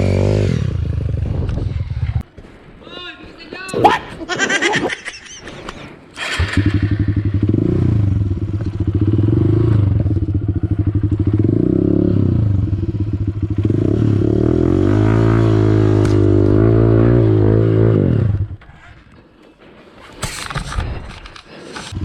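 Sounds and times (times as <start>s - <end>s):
motorcycle engine revving: 0.0s - 2.2s, 6.1s - 19.1s.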